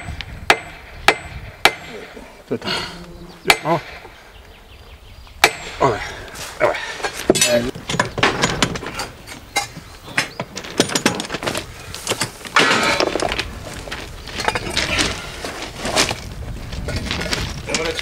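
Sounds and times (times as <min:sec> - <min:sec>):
hand tools clanking on steel rail: 0:06.8 - 0:11.4.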